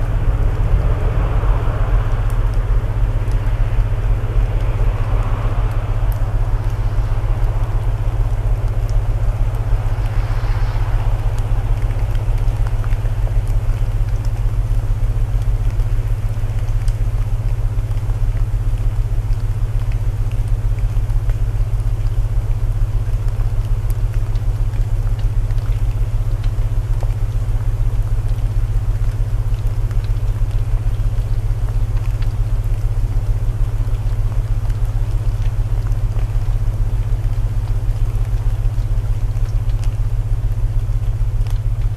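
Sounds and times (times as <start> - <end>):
low tone hum: 0.0 - 15.8
burning wood crackles: 0.0 - 41.9
rain hiss: 0.0 - 41.9.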